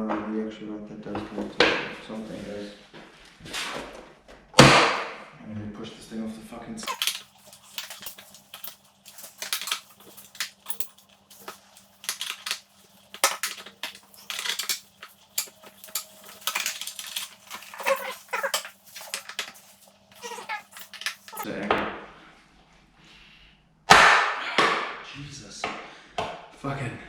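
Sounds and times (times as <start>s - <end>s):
metal tools clinking: 6.8s - 21.5s.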